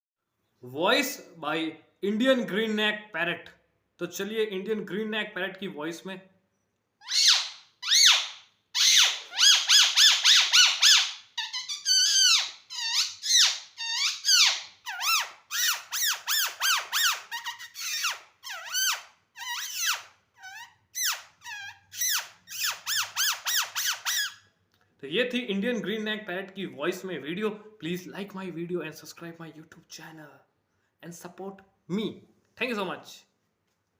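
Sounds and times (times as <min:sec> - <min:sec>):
parakeet squawking: 0:07.0 - 0:24.4.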